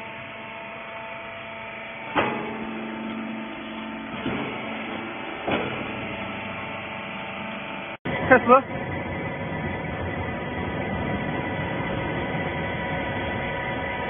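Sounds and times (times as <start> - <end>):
sharp knocks: 4.1 - 6.2.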